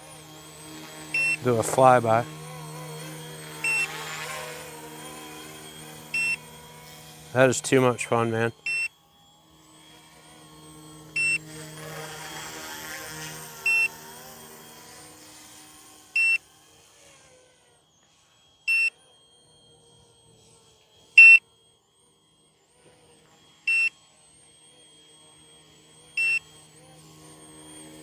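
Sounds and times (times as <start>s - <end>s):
helicopter motor and rotor hum: 0.0s - 21.4s, 22.4s - 28.0s
high electronic warning beep: 1.1s - 2.4s, 3.6s - 4.0s, 6.1s - 6.6s, 7.4s - 8.9s, 11.1s - 11.5s, 13.6s - 14.0s, 16.2s - 16.4s, 18.7s - 19.0s, 21.2s - 21.4s, 23.7s - 24.1s, 26.2s - 26.6s.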